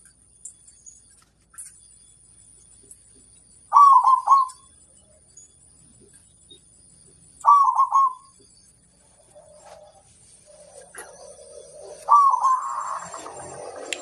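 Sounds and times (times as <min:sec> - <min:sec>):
dove cooing: 0:03.7 - 0:04.6, 0:07.4 - 0:08.3, 0:09.1 - 0:14.0.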